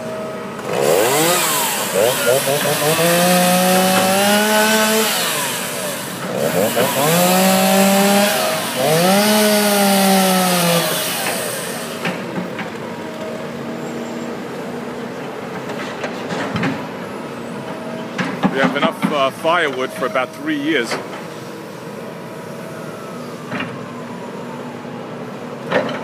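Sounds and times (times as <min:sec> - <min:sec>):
chainsaw cutting wood: 0:00.6 - 0:12.5.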